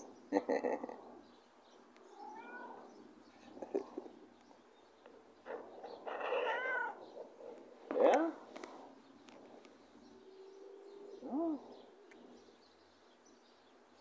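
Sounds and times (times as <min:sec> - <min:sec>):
cat meowing: 0:02.1 - 0:03.0, 0:06.0 - 0:07.0.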